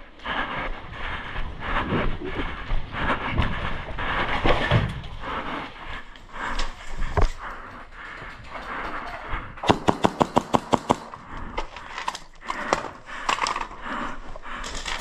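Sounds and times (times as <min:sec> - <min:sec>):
airsoft guns firing: 0:09.6 - 0:11.4.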